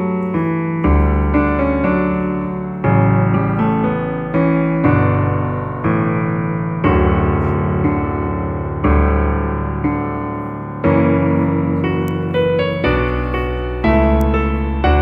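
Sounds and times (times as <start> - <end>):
calm piano chords: 0.0 - 15.0.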